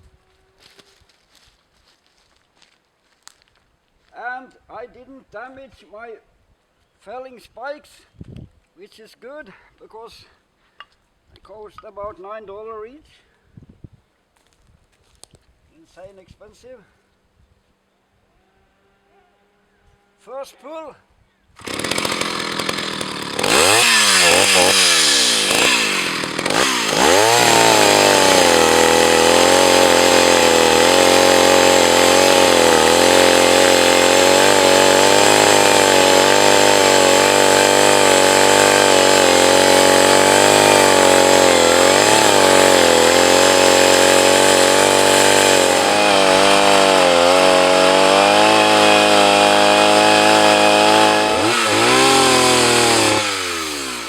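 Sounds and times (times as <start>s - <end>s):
chainsaw revving: 21.6s - 54.0s.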